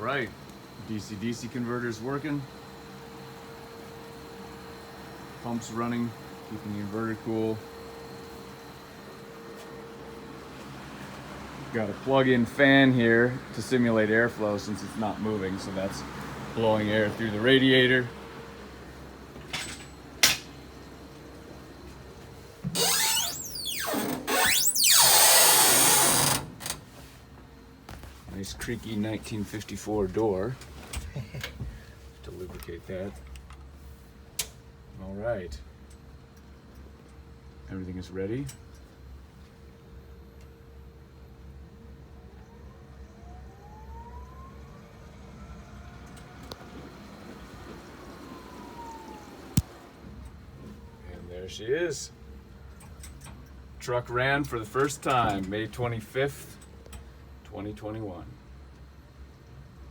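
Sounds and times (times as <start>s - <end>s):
electric motor whine: 22.7s - 26.4s
door hinges creaking: 22.7s - 26.6s.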